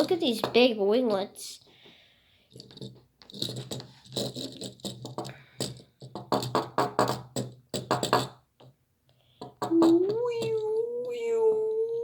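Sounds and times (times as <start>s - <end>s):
child making mouth sounds: 9.6s - 12.0s.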